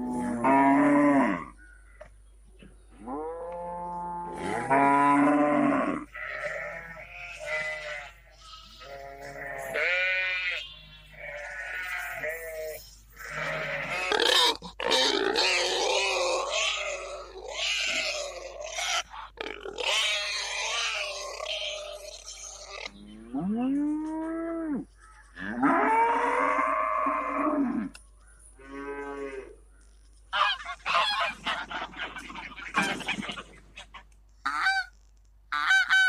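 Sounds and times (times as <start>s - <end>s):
cow mooing: 0.0s - 1.5s, 3.0s - 8.1s.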